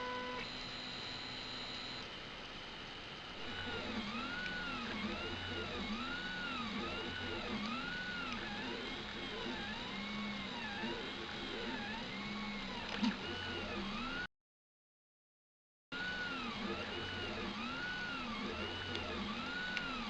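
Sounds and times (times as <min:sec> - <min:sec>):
stepper motors whining: 0:03.4 - 0:14.2, 0:16.0 - 0:20.0.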